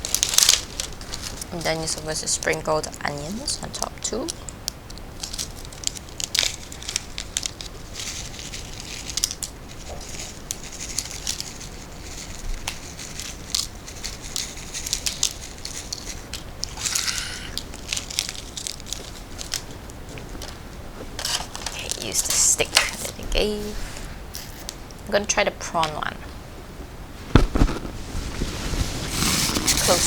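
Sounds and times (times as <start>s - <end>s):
food packaging rustling: 0.0s - 24.8s, 27.2s - 30.0s
fried onions being sprinkled: 5.1s - 19.7s.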